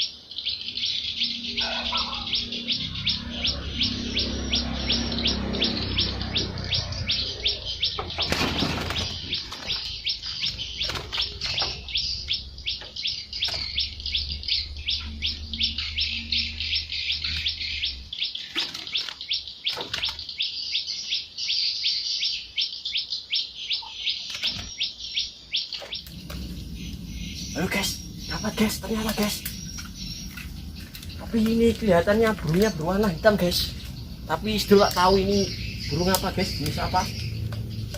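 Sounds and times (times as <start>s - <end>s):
bird chirping: 0.0s - 37.9s
low hum: 26.0s - 37.9s.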